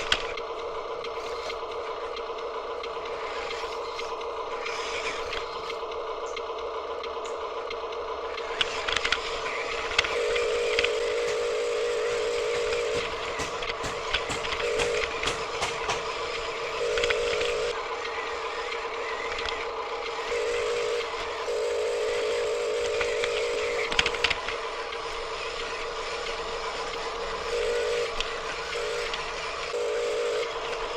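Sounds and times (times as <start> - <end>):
toy truck electric motor whining: 0.0 - 30.9
knocks: 12.4 - 16.4.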